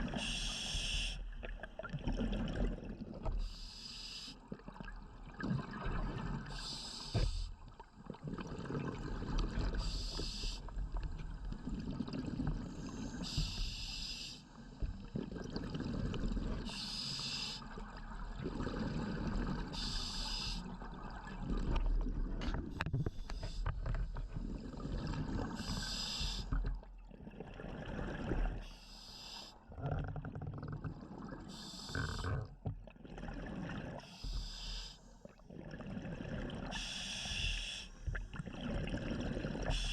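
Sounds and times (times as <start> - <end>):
regulator hiss on inhalation: 0.2 - 1.2, 3.5 - 4.4, 6.5 - 7.5, 9.8 - 10.7, 13.2 - 14.5, 16.7 - 17.7, 19.8 - 20.7, 25.6 - 26.6, 28.7 - 29.6, 31.5 - 32.4, 34.0 - 35.1, 36.8 - 37.9
gurgle of exhaled bubbles: 1.4 - 3.5, 4.6 - 13.3, 14.8 - 16.8, 17.7 - 28.7, 29.7 - 34.0, 35.2 - 37.0, 38.0 - 39.9.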